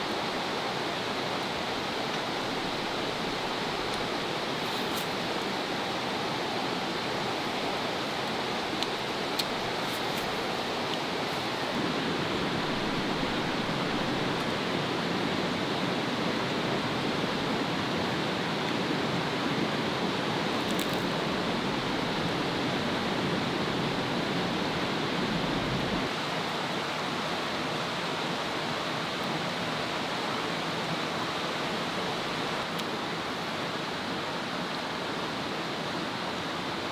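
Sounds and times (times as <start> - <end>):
steady rushing noise: 0.0 - 26.2.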